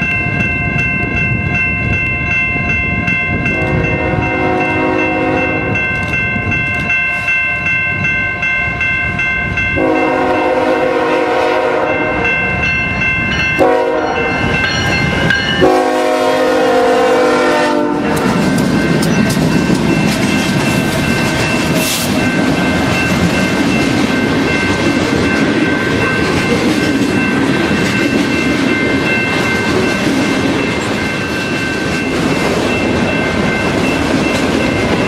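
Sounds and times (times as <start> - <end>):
steady high ringing: 0.0 - 10.9, 11.8 - 35.0
train rumbling: 0.0 - 35.0
locomotive horn blasts: 3.4 - 5.8, 9.8 - 12.4, 13.6 - 14.4, 15.6 - 18.4.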